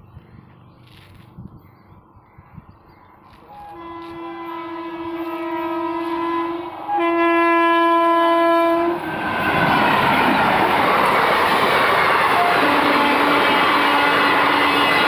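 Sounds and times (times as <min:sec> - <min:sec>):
train passing rumble: 0:03.1 - 0:15.0
locomotive horn blasts: 0:03.4 - 0:09.0, 0:12.3 - 0:15.0.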